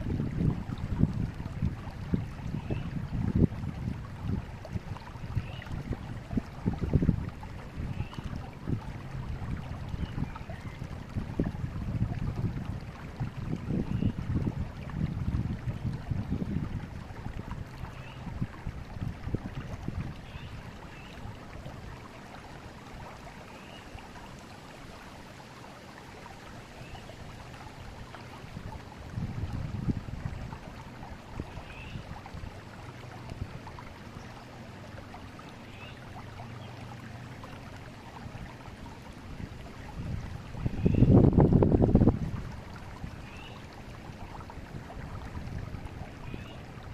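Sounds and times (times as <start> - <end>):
wind gusts on microphone: 0.0 - 20.2, 28.4 - 32.6, 39.3 - 43.2
river flowing: 0.0 - 46.9.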